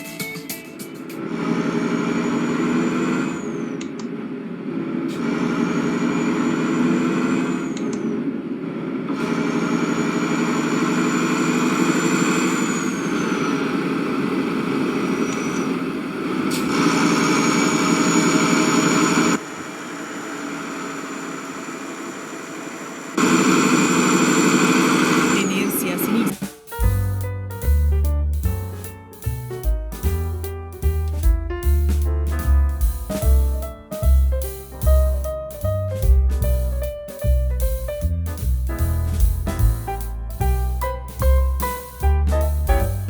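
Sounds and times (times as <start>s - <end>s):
engine running: 1.1s - 43.0s
thin high whine: 16.7s - 26.4s.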